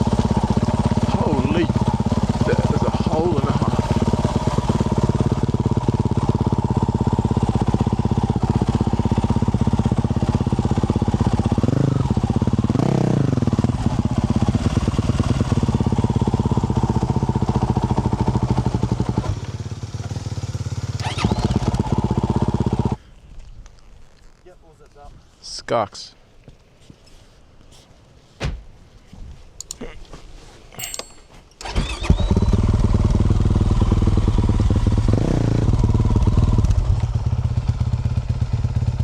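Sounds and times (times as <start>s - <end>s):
dirt bike engine running: 0.0s - 23.0s, 30.8s - 39.0s.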